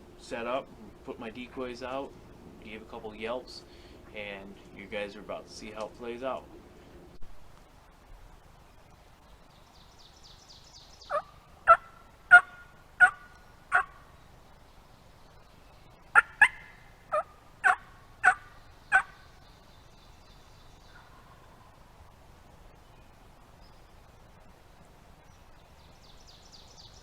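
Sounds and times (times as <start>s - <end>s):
faint songbird trill: 8.7s - 12.1s, 18.2s - 21.9s, 25.2s - 27.0s
turkey yelping: 11.1s - 14.1s, 16.1s - 19.2s.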